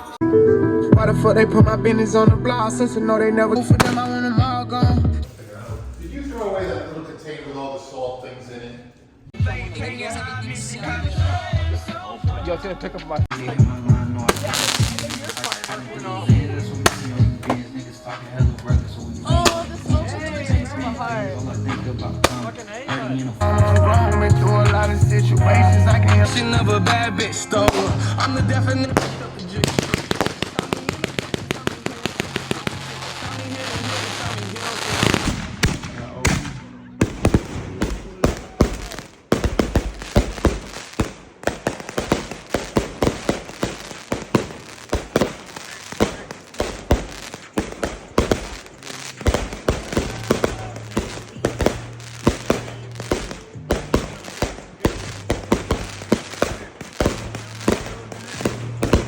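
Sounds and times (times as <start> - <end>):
background music with bass: 0.0 - 7.0, 9.0 - 40.8, 42.4 - 59.0
fireworks bangs and crackles: 3.7 - 6.7, 13.2 - 23.4, 26.0 - 59.0.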